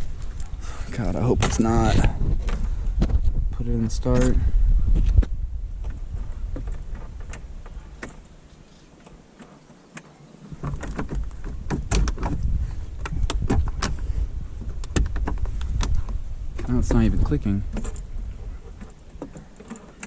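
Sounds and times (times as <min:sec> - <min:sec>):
sharp clicks and knocks of controls: 0:09.0 - 0:18.0.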